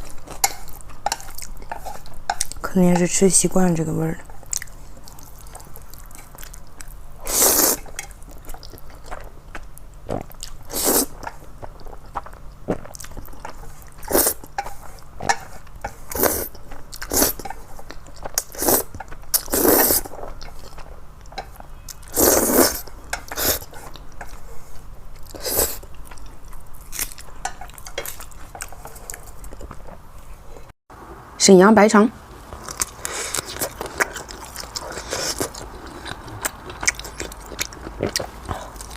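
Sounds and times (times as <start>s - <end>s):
chewing and mouth clicks: 4.5s - 7.0s, 32.5s - 38.9s
slurping noodles: 7.2s - 7.8s, 10.2s - 11.2s, 18.5s - 20.1s, 22.1s - 23.9s.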